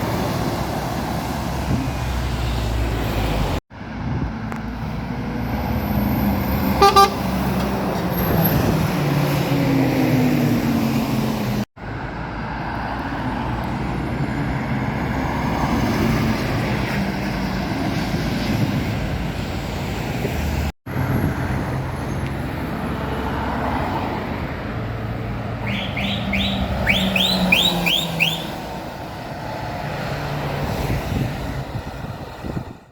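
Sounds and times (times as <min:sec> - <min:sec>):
road traffic passing: 0:00.0 - 0:32.9
horn toot: 0:06.8 - 0:07.3, 0:25.6 - 0:28.7
high rising chirps: 0:25.6 - 0:28.7.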